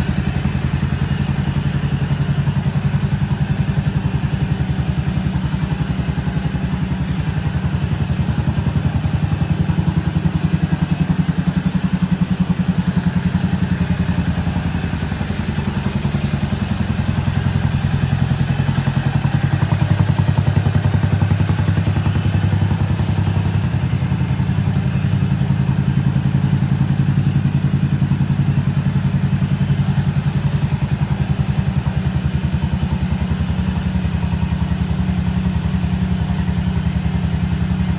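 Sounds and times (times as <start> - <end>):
scooter engine idling: 0.0 - 37.9.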